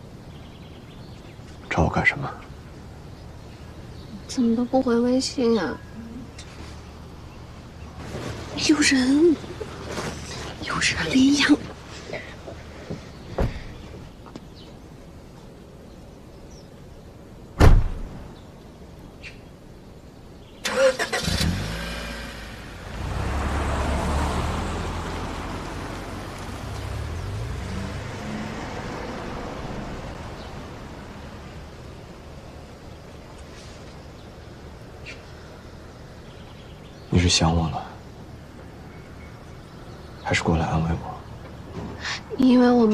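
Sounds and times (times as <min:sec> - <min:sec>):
car door thud: 0:17.6 - 0:18.2
car engine starting and rumbling: 0:20.6 - 0:37.3.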